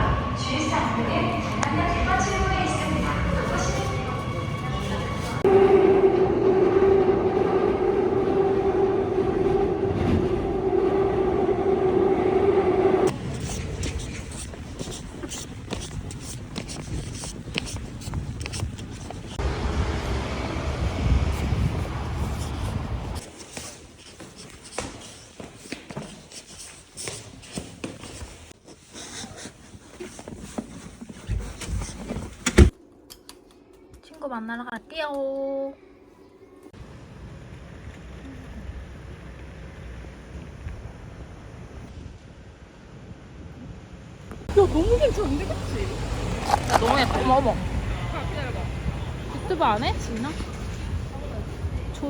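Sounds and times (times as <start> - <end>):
train rumbling with whine: 0.0 - 23.3, 36.7 - 52.0.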